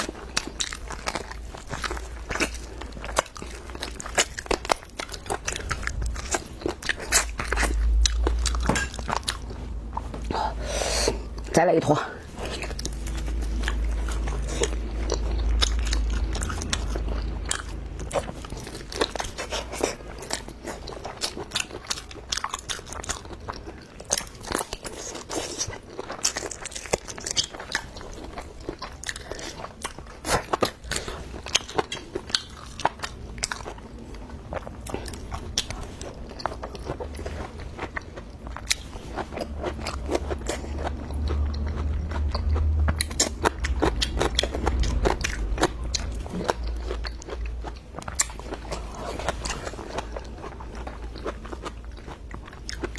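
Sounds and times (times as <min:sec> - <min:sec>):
chewing and crunching food: 0:00.0 - 0:52.9
low rumble: 0:00.3 - 0:11.6, 0:12.2 - 0:21.6, 0:33.3 - 0:52.9.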